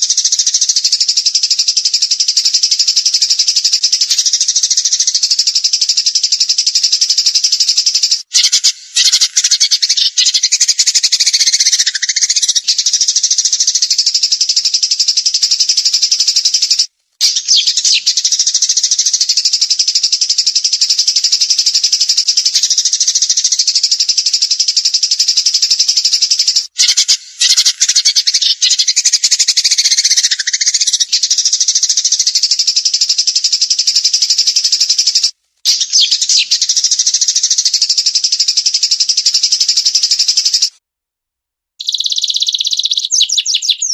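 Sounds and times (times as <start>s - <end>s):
songbird rapid trill: 0.0s - 40.8s, 41.8s - 43.9s.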